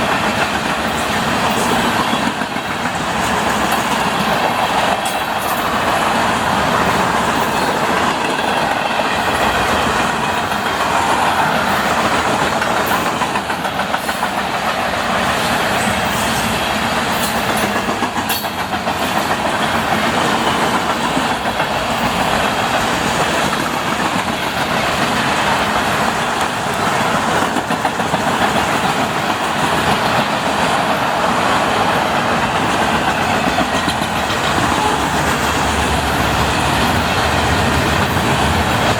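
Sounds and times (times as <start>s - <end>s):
clickety-clack over rail joints: 0.0s - 38.9s
train wheels rumbling on rail: 0.0s - 38.9s.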